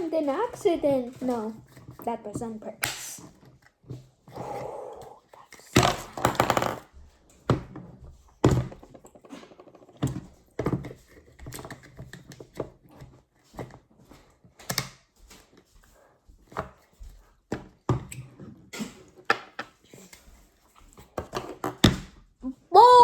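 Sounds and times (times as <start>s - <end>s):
plastic toys clacking on hard surface: 5.7s - 7.6s.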